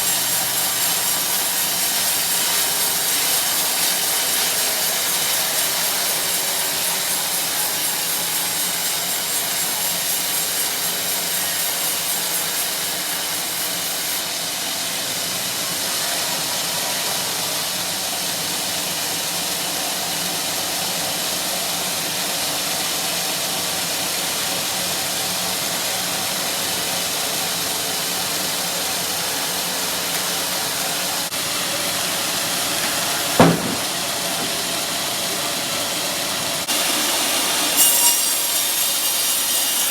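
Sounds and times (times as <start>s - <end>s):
saw cutting through log: 0.0s - 17.2s, 27.8s - 39.9s
sharp knock: 32.8s - 34.5s.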